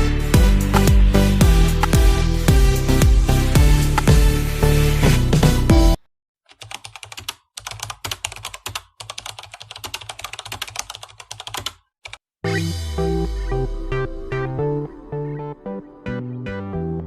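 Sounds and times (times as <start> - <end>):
electronic music: 0.0 - 6.0, 12.4 - 17.0.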